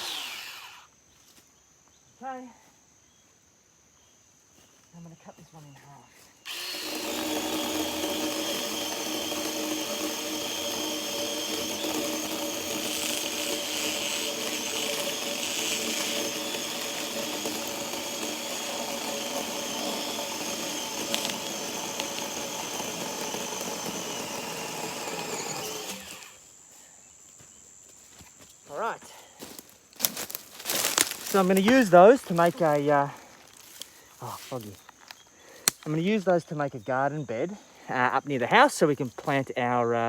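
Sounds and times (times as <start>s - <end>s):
chainsaw cutting log: 0.0s - 0.9s, 6.4s - 26.4s, 30.0s - 32.8s.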